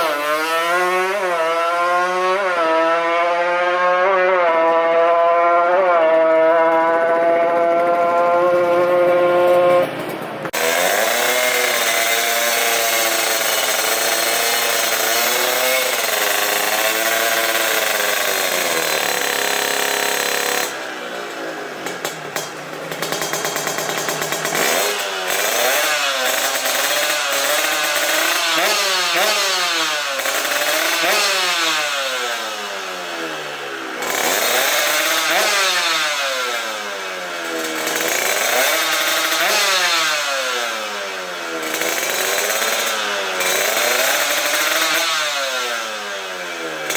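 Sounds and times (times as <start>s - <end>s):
two-stroke motorcycle engine revving: 0.0s - 46.9s.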